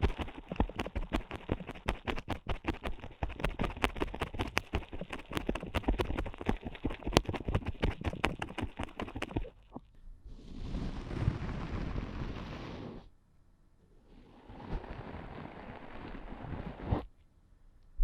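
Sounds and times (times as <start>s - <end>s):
ear pick scratching and clicking: 0.0s - 9.8s.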